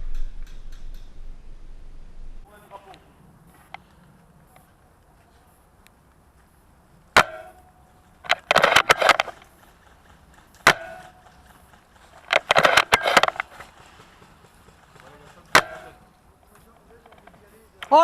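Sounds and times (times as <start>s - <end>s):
airsoft rifle shot: 7.2s - 7.6s, 8.3s - 9.4s, 10.6s - 11.2s, 15.5s - 16.0s.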